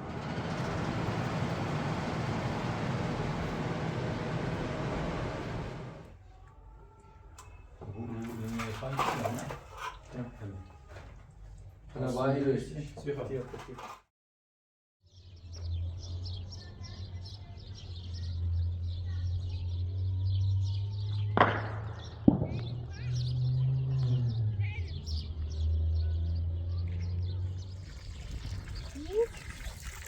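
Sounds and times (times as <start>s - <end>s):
small birds chirping: 15.1s - 30.0s.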